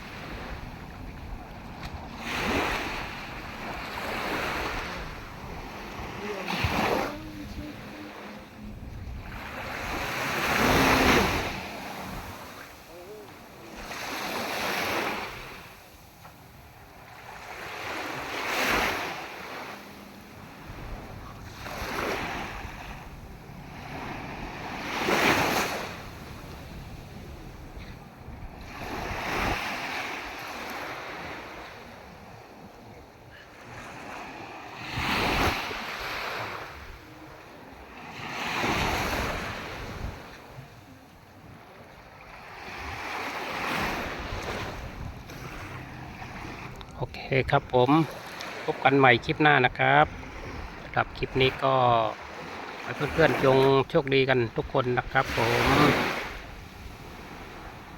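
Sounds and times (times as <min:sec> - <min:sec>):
wind rumbling on microphone: 0:00.0 - 0:13.6, 0:20.0 - 0:30.4, 0:38.6 - 0:43.1, 0:43.8 - 0:47.8
sea waves washing onto shore: 0:00.0 - 0:57.9.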